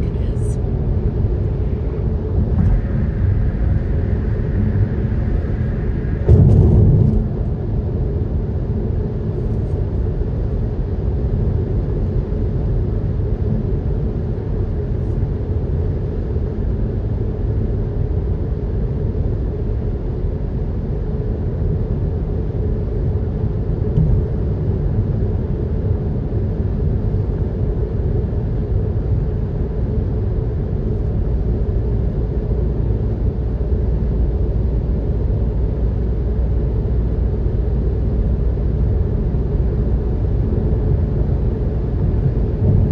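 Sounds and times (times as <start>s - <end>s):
tyres and engine rumble in cabin: 0.0s - 42.9s
vehicle bump: 6.2s - 7.6s, 42.3s - 42.9s.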